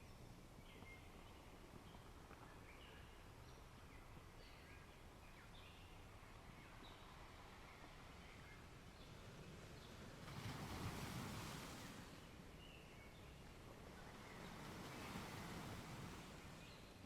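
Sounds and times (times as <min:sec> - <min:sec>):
waves washing: 0:09.2 - 0:12.4, 0:13.8 - 0:16.6.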